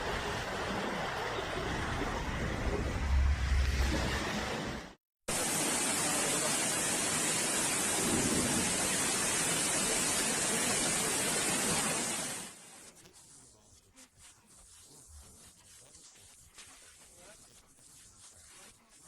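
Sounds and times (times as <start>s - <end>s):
heavy rain pouring: 0.0s - 12.5s.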